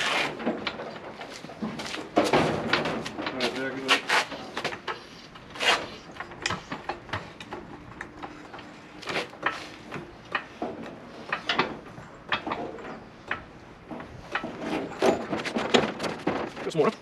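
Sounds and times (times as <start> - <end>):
jack clicks and metal clunks: 6.1 - 17.0.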